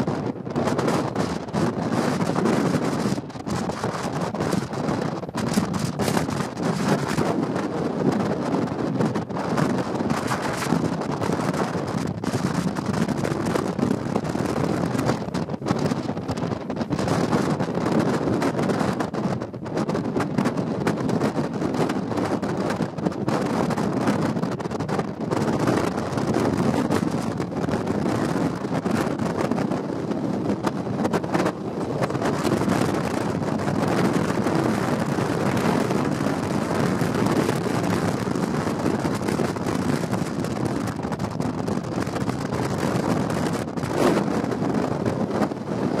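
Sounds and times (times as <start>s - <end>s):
wind blowing across microphone: 0.0s - 46.0s.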